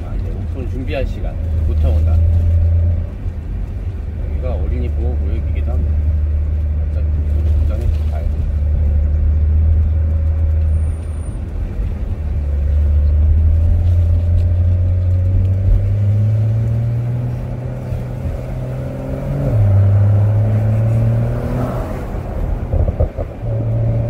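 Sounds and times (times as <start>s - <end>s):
car engine running: 0.0s - 24.0s
road and wind noise: 0.0s - 24.0s.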